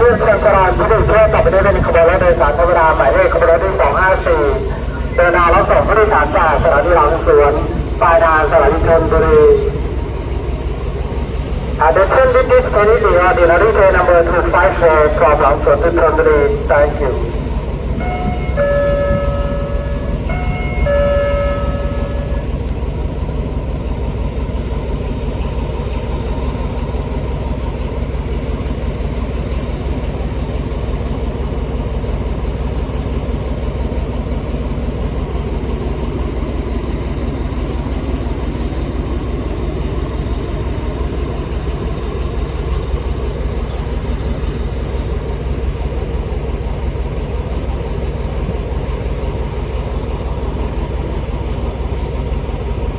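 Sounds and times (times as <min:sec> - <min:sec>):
diesel locomotive engine drone: 0:00.0 - 0:52.9
locomotive air horn blasts: 0:12.0 - 0:22.8.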